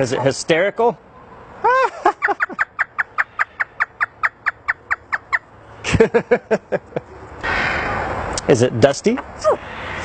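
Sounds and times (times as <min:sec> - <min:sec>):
parrot mimicking laughter: 0:01.6 - 0:05.3.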